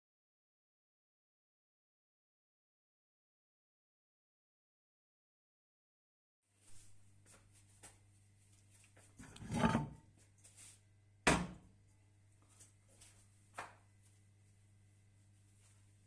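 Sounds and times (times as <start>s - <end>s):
low electrical hum: 6.6s - 16.0s
rustling scrape: 9.1s - 10.0s.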